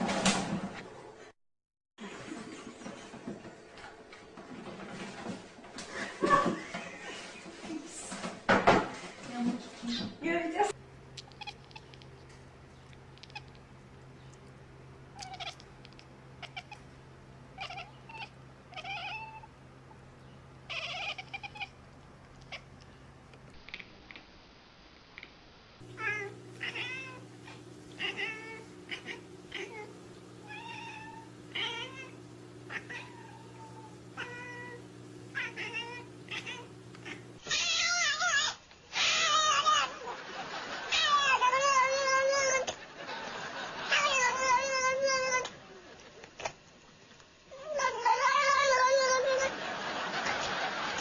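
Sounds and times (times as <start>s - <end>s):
faint steady hum: 10.7s - 38.7s
cats meowing: 11.2s - 12.2s, 13.1s - 13.7s, 15.1s - 16.9s, 17.5s - 19.6s, 20.7s - 22.8s, 25.8s - 39.9s.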